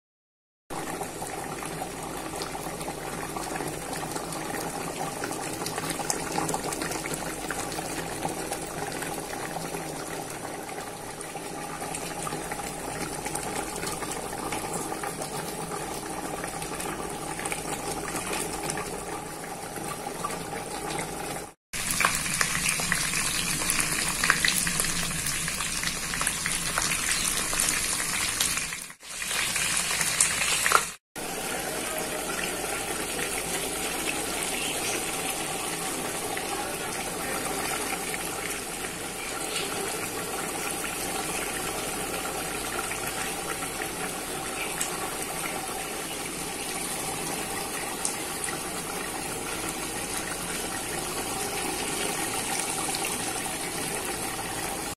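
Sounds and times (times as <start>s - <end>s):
chicken sizzling in oil: 21.8s - 54.9s.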